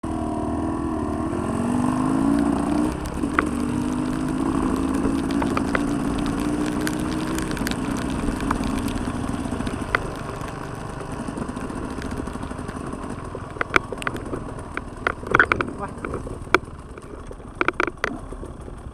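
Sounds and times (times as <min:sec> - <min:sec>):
motorcycle engine running: 0:00.0 - 0:18.9
clicks and knocks: 0:02.2 - 0:18.8.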